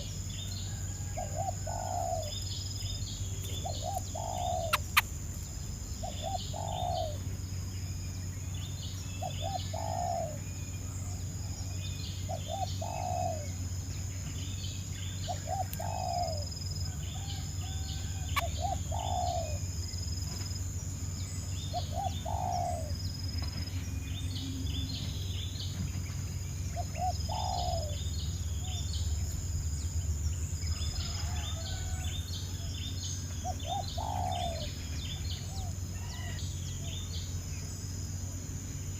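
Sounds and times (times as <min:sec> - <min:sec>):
bird cooing: 0:00.9 - 0:02.4, 0:03.5 - 0:05.0, 0:06.0 - 0:07.3, 0:09.2 - 0:11.6, 0:12.3 - 0:13.6, 0:15.3 - 0:16.5, 0:17.2 - 0:19.7, 0:21.7 - 0:23.0, 0:26.8 - 0:28.0, 0:33.4 - 0:36.4.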